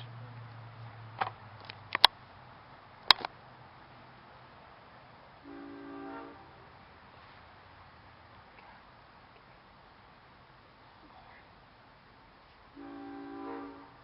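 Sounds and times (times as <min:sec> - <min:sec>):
sharp clicks and knocks: 0:01.2 - 0:02.2, 0:03.0 - 0:03.3
horn sounding a chord: 0:05.4 - 0:06.8, 0:12.7 - 0:14.0.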